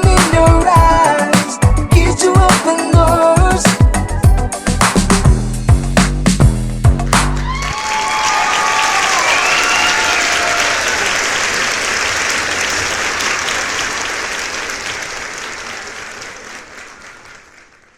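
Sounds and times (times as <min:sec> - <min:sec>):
crowd applauding and cheering: 0:07.0 - 0:17.9.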